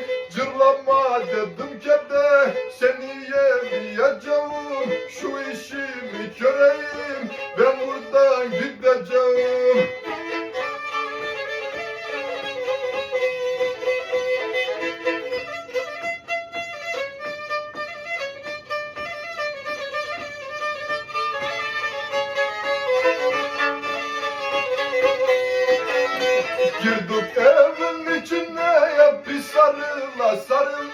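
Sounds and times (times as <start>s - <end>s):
bowed fiddle folk melody: 0.0s - 30.9s.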